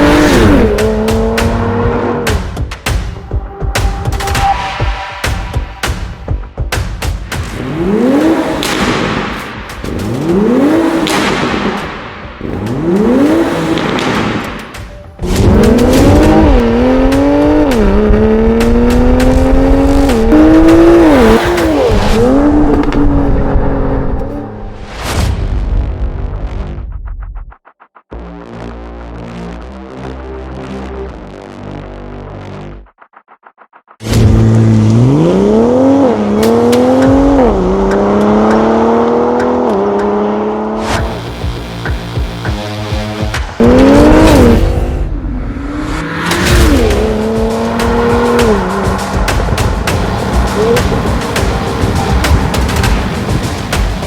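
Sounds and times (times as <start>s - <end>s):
car engine accelerating hard: 0.0s - 2.3s, 7.5s - 14.5s, 15.2s - 24.4s, 34.2s - 41.6s, 42.5s - 54.0s.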